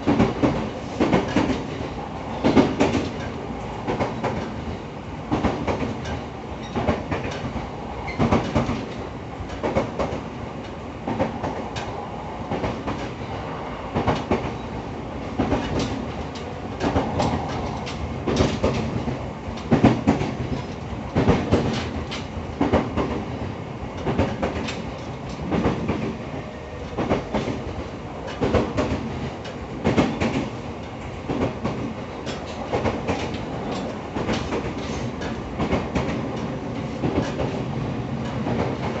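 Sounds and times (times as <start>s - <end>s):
train rolling noise: 0.0s - 39.0s
wheels clacking over rail joints: 26.8s - 37.6s.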